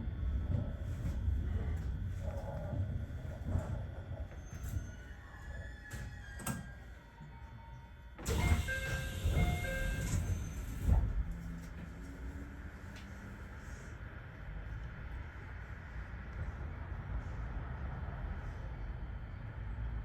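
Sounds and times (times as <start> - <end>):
electric train rumbling to a stop: 0.0 - 20.0
train doors opening with a hiss: 8.2 - 11.3.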